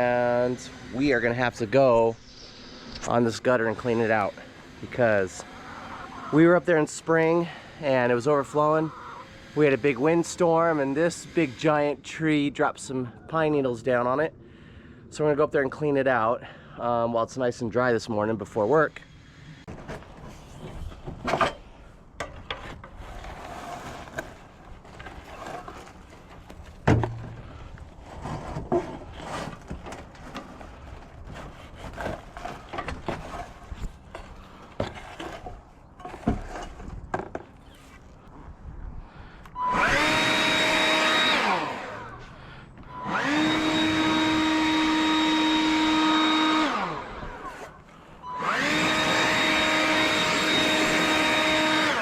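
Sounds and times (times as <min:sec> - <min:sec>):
small electric motor whining: 0:00.0 - 0:12.1, 0:39.5 - 0:52.0.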